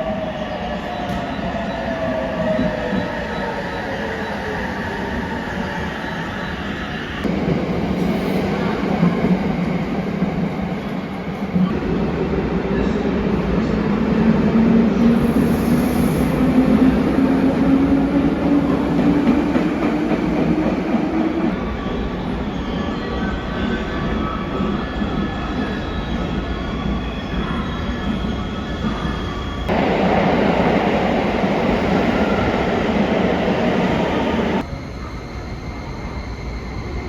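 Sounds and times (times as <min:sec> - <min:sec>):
train cars rumbling: 0:29.0 - 0:35.3.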